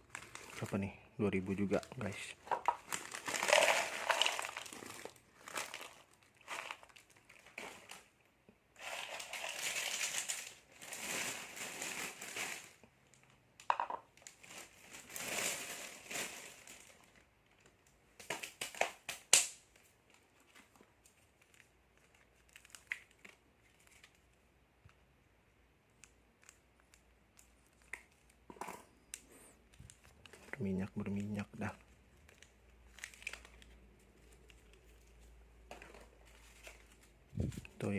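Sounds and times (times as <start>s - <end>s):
plastic snack packets crinkling: 0.0s - 25.1s, 25.9s - 37.9s
sharp plastic snaps: 18.2s - 19.6s.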